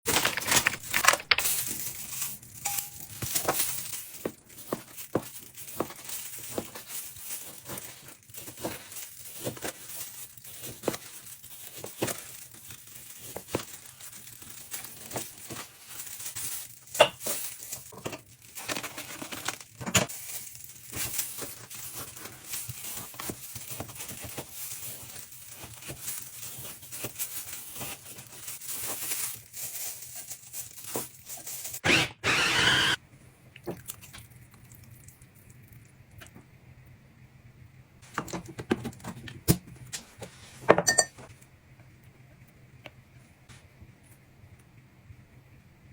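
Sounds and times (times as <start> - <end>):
plastic packaging crinkling and tearing: 0.1 - 32.0.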